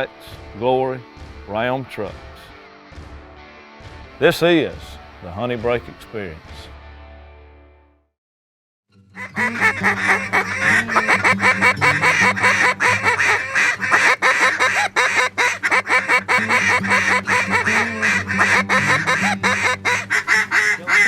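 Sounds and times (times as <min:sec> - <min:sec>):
ducks quacking: 0:09.2 - 0:21.0.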